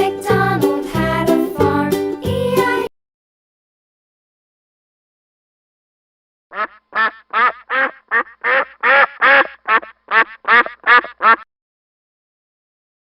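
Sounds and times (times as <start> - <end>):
duck quacking: 6.5 - 11.5.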